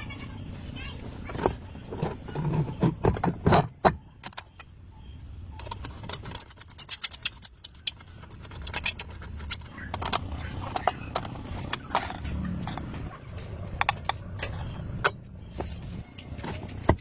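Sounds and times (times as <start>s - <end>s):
metal tools clinking: 5.6s - 13.0s.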